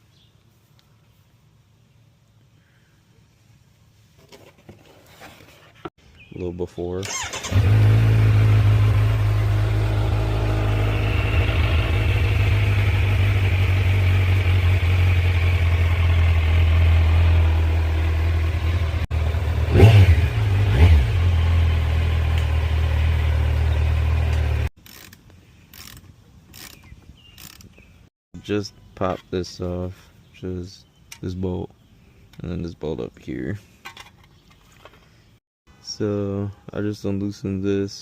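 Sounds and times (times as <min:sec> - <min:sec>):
motorcycle engine idling and revving: 0:07.0 - 0:27.8.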